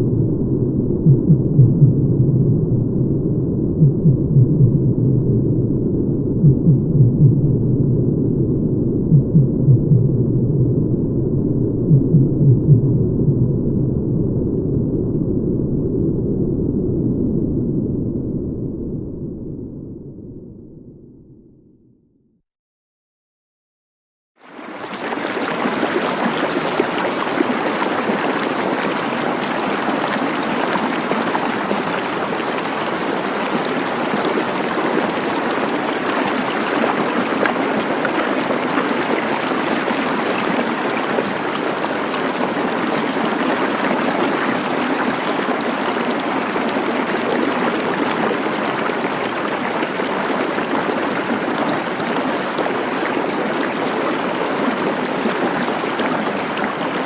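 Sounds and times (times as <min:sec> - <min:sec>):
water flowing in a stream: 0:24.4 - 0:57.0.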